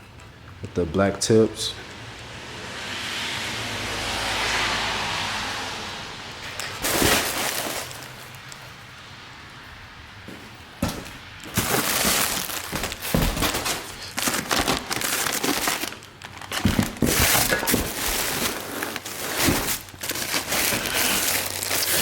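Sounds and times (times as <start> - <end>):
packaging crinkling: 6.6 - 8.8, 10.8 - 22.0.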